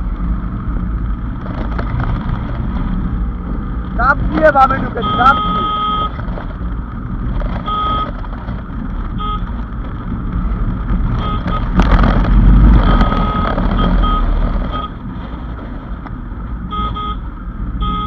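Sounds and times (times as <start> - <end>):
engines and road traffic rumble: 0.0 - 18.0
vehicle horn tooting: 4.8 - 6.2, 7.6 - 8.2, 9.2 - 9.5, 11.2 - 11.8, 12.9 - 15.0, 16.7 - 17.2, 17.8 - 18.0.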